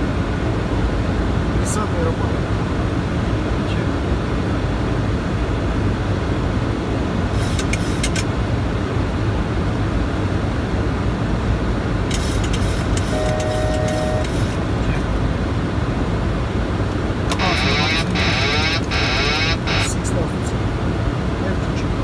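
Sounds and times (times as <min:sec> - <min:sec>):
airliner cockpit noise: 0:00.0 - 0:22.0
steady tone: 0:12.8 - 0:15.0, 0:17.3 - 0:20.3.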